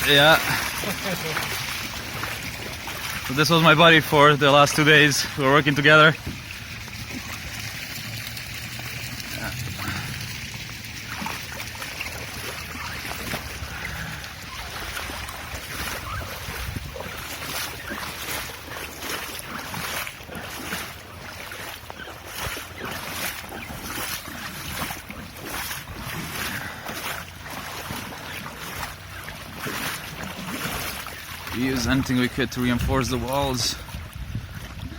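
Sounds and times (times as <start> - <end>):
water lapping and splashing: 0.0 - 34.9
wind buffeting microphone: 12.6 - 17.6, 31.6 - 34.9.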